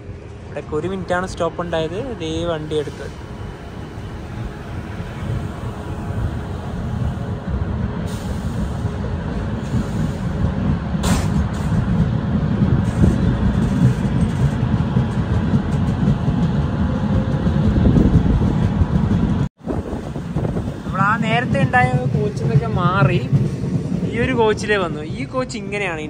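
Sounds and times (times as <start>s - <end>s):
train wheels rumbling: 0.0s - 26.0s
sharp clank: 11.0s - 11.7s.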